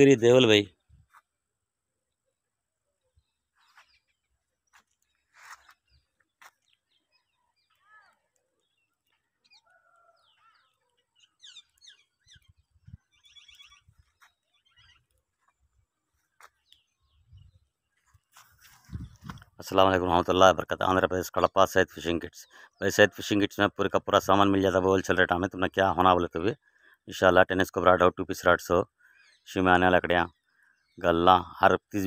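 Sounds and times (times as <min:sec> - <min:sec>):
faint birds chirping and whistling: 0:02.0 - 0:23.4, 0:28.4 - 0:32.0.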